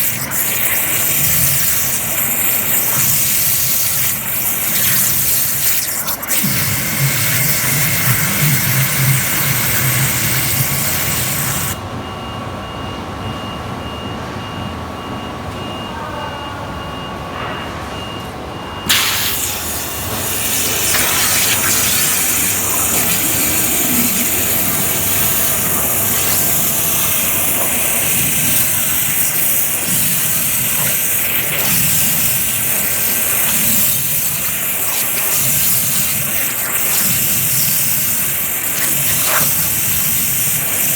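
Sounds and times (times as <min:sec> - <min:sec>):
water jet hissing: 0:00.0 - 0:11.8, 0:18.9 - 0:40.9
machine hum: 0:18.9 - 0:34.1.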